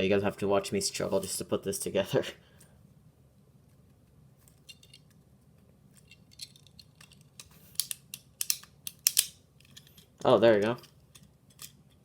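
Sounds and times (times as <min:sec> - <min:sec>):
plastic parts clicking and scraping: 0:04.4 - 0:05.2, 0:05.9 - 0:12.0.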